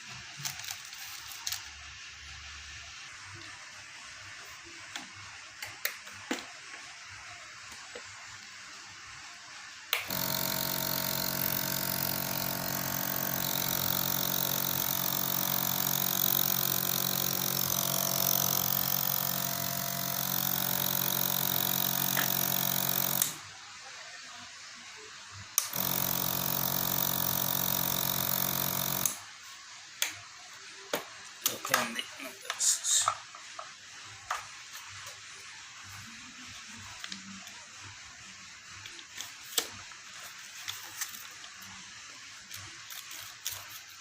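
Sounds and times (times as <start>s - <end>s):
nebulizer compressor humming: 9.9s - 23.5s, 25.6s - 29.2s.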